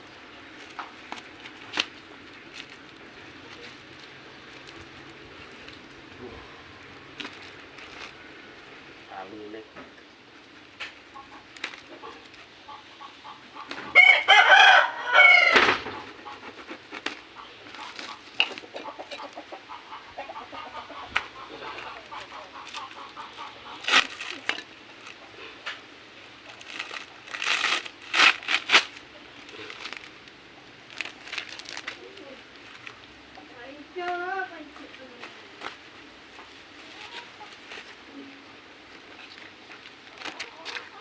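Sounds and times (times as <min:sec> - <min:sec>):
rooster crowing: 0:13.8 - 0:16.0.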